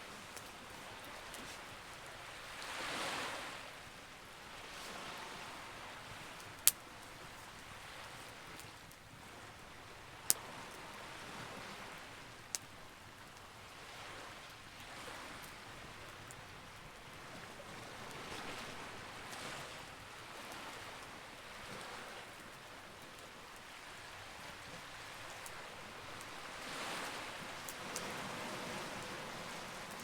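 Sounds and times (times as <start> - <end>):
campfire crackling: 0.0 - 3.6, 4.2 - 30.0.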